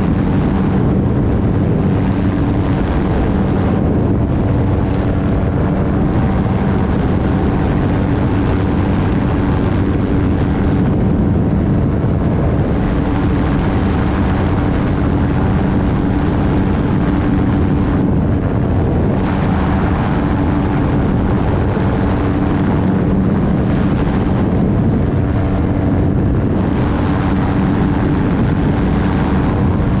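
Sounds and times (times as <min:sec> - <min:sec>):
propeller engine running: 0:00.0 - 0:30.0
air rushing: 0:10.4 - 0:30.0.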